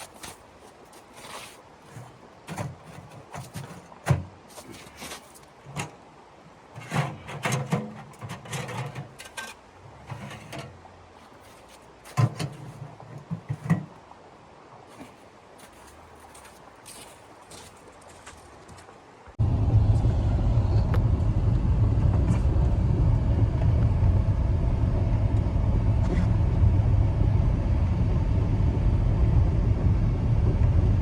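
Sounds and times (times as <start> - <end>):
rustling of things handled: 0.0 - 6.0, 6.7 - 14.0, 14.9 - 19.0
knocks and thumps of handling: 11.5 - 14.0.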